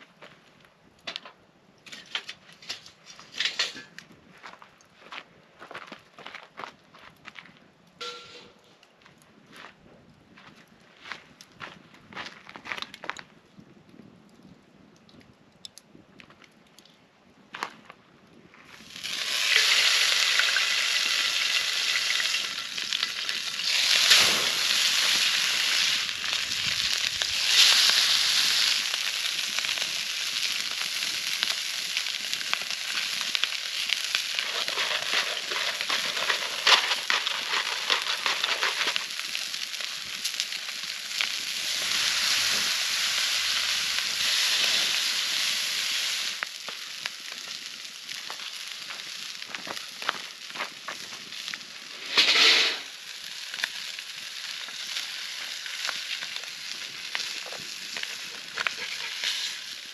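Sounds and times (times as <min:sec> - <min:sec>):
food sizzling in a skillet: 0:18.9 - 0:50.5, 0:51.3 - 0:59.9.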